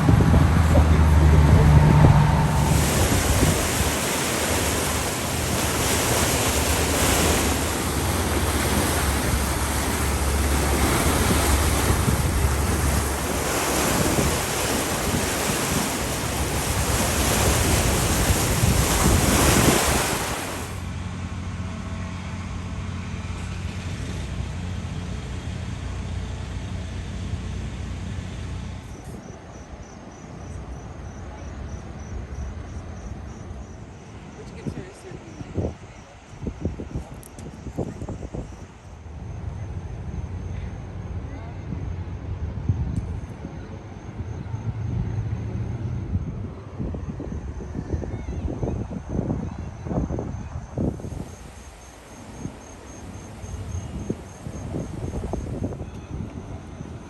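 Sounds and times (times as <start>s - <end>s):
floodwater rushing: 0.0s - 20.9s, 50.8s - 57.0s
wind on microphone: 0.0s - 20.9s, 34.4s - 40.1s, 41.1s - 57.0s.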